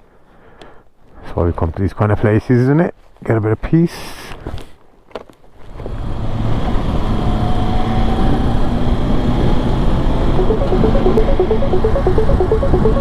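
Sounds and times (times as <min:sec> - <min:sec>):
faint background music: 0:10.4 - 0:13.0.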